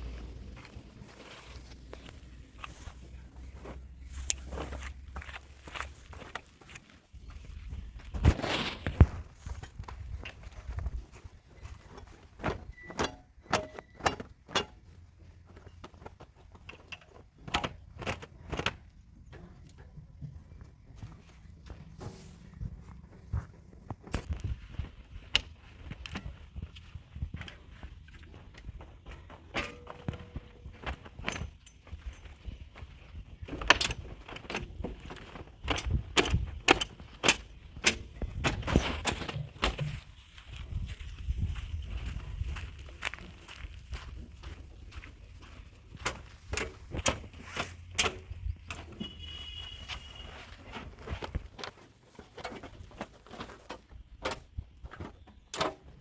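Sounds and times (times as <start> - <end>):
low engine rumble: 0.0 - 6.1.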